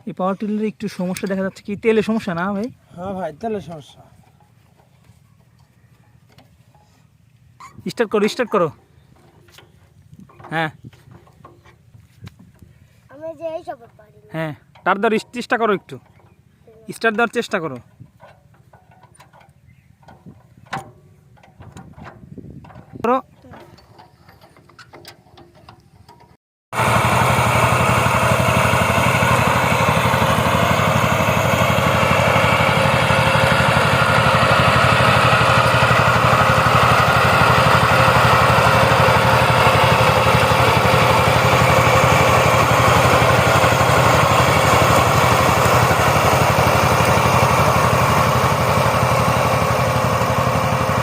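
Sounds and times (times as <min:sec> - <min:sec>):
tiller diesel engine running: 0:26.8 - 0:51.0.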